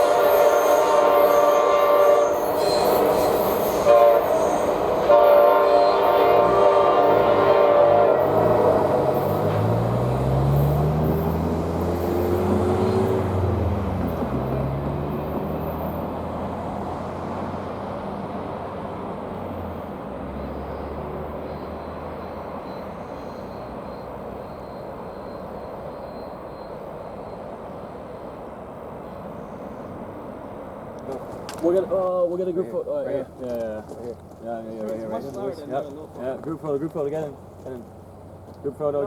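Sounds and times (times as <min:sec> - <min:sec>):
locomotive air horn: 0:00.0 - 0:09.5
train wheels rumbling: 0:00.0 - 0:39.0
low engine note: 0:06.2 - 0:25.8.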